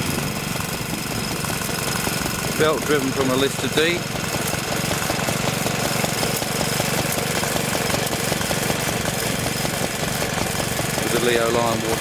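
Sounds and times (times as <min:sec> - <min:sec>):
stationary engine running: 0:00.0 - 0:12.0.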